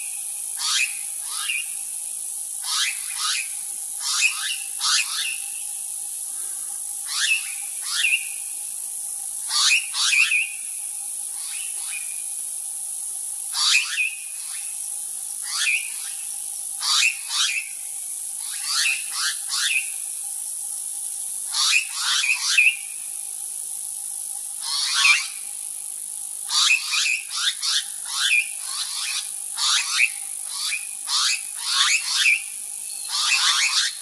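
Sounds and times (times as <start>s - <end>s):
faint steady tone: 0.0s - 13.4s, 32.4s - 34.0s
high-pitched hiss: 0.0s - 34.0s.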